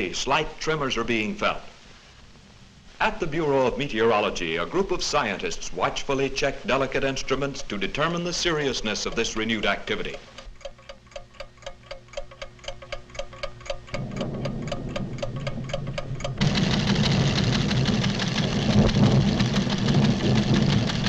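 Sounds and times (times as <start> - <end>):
low hum: 1.4 - 21.0
instrument ticking: 6.7 - 20.0
earth tremor rumbling: 13.9 - 21.0.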